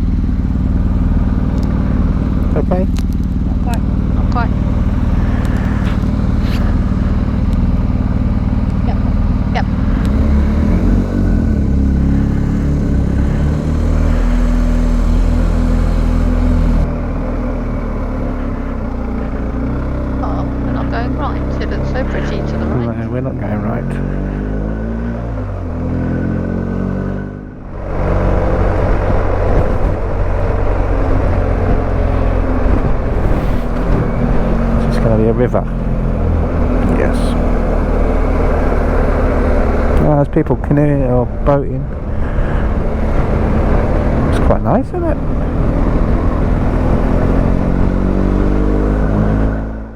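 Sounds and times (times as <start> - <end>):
motorcycle engine running: 0.0 - 49.9
wind noise: 27.6 - 40.0.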